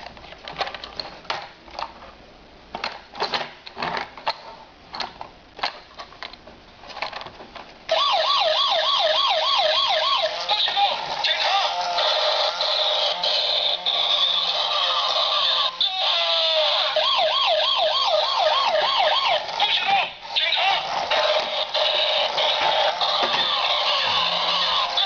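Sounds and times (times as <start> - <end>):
toy electronic siren warbling: 7.9 - 25.0.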